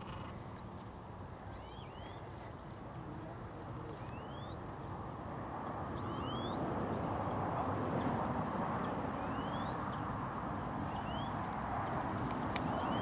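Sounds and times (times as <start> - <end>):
small bird chirping: 1.5 - 2.3, 4.0 - 4.6, 6.0 - 6.6, 10.9 - 12.0, 12.6 - 13.0.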